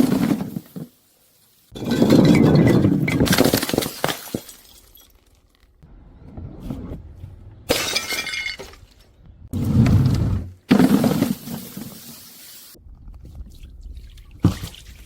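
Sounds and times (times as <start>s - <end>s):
glass breaking: 1.8s - 5.5s, 7.7s - 8.9s.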